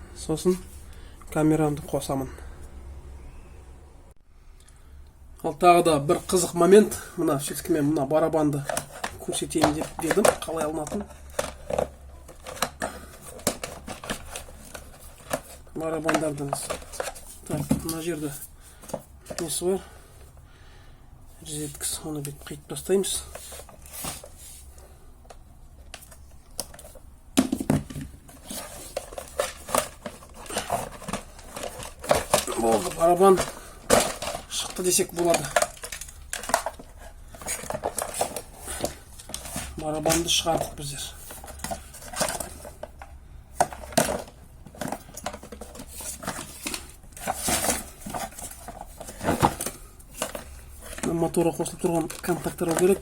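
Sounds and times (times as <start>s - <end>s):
vacuum cleaner parts clattering: 6.1s - 19.9s, 25.9s - 53.0s.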